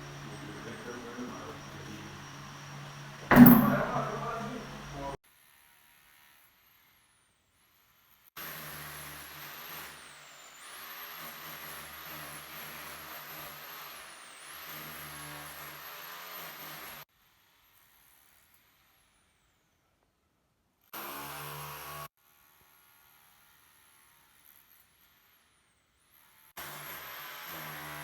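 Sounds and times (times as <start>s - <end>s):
motor whining: 0.0s - 5.2s.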